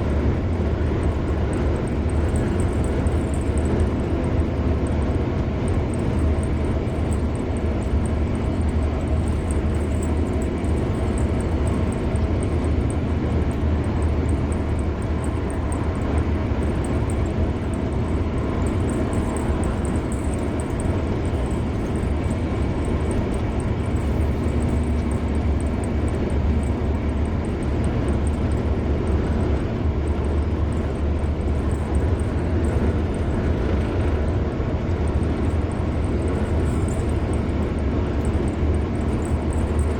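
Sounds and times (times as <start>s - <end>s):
car road noise on highway: 0.0s - 39.9s.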